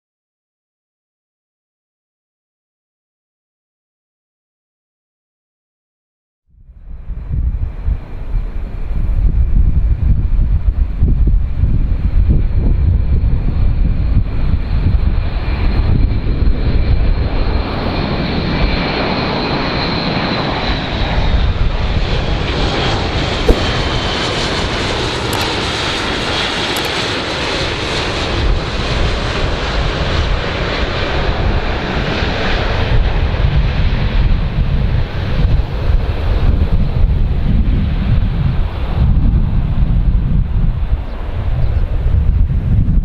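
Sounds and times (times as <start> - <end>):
wind buffeting microphone: 6.6 - 17.7, 19.8 - 43.0
airplane engines passing by: 6.6 - 43.0
brief click: 23.5 - 23.9.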